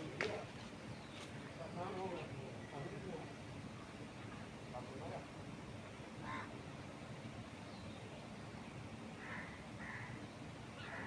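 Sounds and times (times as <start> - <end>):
low background noise: 0.0 - 11.0
crow cawing: 6.2 - 6.5, 9.2 - 10.1.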